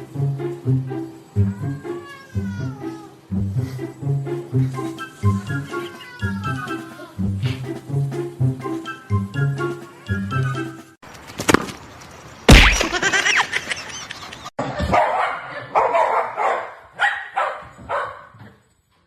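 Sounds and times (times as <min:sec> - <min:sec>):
background music with a beat: 0:04.7 - 0:11.0
dog barking: 0:14.8 - 0:18.6.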